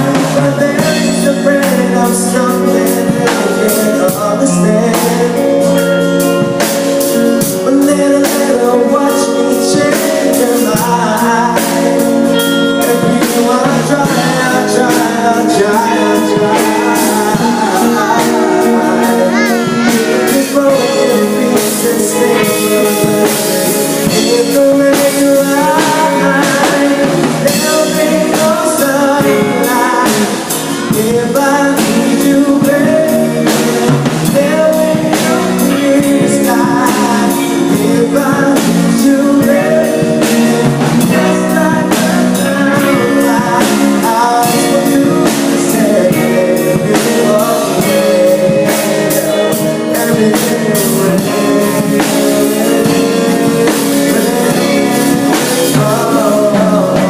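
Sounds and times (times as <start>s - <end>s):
band playing pop-rock song: 0.0s - 57.0s
drum kit: 0.0s - 57.0s
guitar: 0.0s - 57.0s.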